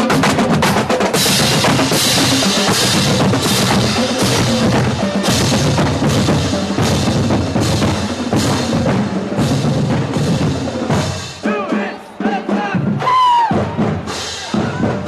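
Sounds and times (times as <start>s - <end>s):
marching band drumline: 0.0s - 15.0s
high whoops: 13.0s - 13.7s.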